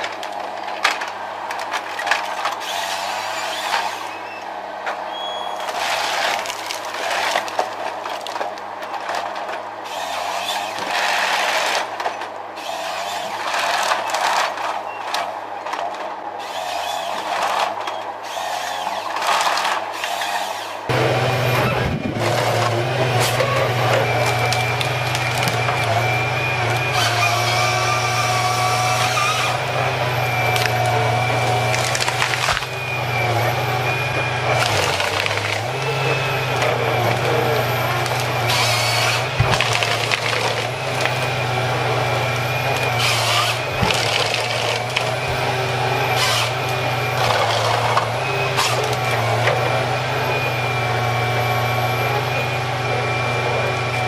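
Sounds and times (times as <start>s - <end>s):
wood cracking and splintering: 0.0s - 2.9s, 5.6s - 9.6s, 21.5s - 49.6s
tree-felling machinery droning: 0.0s - 54.0s.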